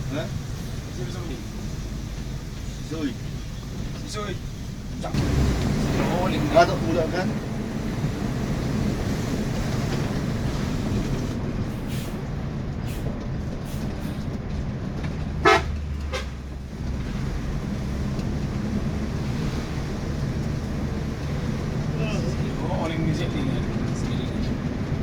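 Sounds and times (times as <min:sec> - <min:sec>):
bus engine and road rumble: 0:00.0 - 0:25.0
short horn toot: 0:15.4 - 0:16.4.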